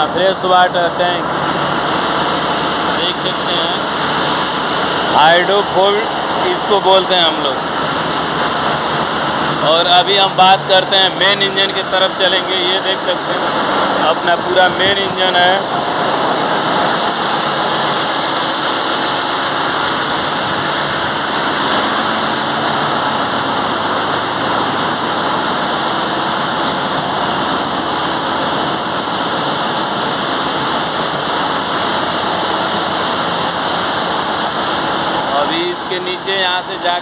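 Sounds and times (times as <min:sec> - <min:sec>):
engine room machinery roar: 0:00.0 - 0:37.0.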